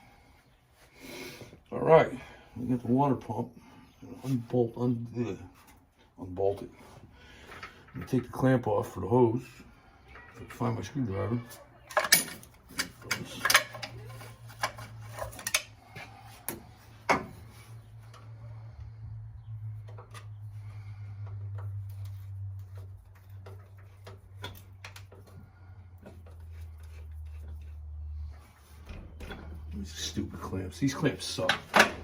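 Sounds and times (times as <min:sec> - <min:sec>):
hand tools clinking and knocking: 0:10.2 - 0:17.6, 0:29.2 - 0:32.0.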